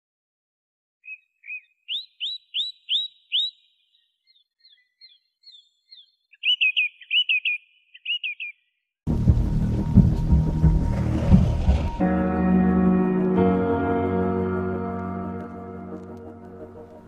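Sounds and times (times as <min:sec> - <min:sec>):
songbird whistling and warbling: 0:01.0 - 0:08.7.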